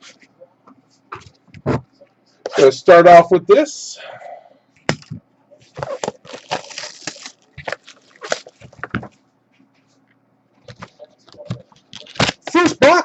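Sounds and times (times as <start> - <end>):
shrink-wrap crinkling and tearing: 5.8 - 8.8, 11.9 - 12.7.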